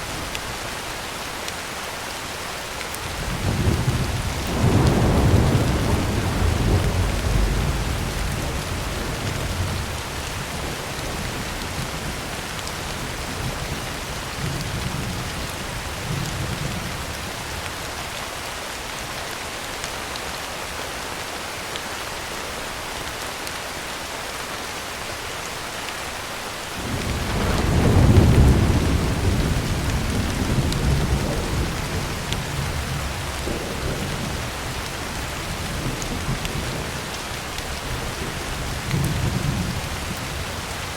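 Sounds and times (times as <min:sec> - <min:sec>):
rain drumming on a tin roof: 0:00.0 - 0:40.9
rolling thunder: 0:03.1 - 0:12.3, 0:26.8 - 0:37.1.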